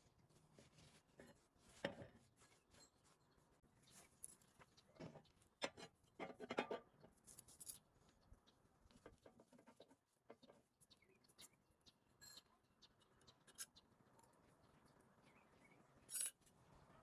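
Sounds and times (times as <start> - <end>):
small handling clicks and scrapes: 16.1 - 16.5.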